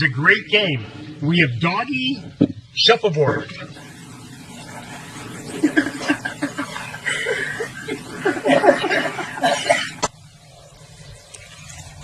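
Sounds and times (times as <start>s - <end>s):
person laughing: 5.4s - 10.0s.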